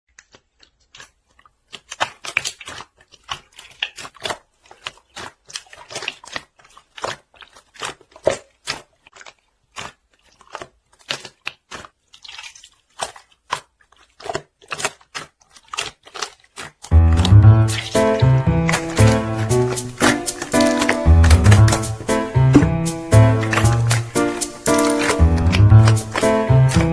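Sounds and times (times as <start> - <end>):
slime squeezed by hand: 0.3 - 26.9.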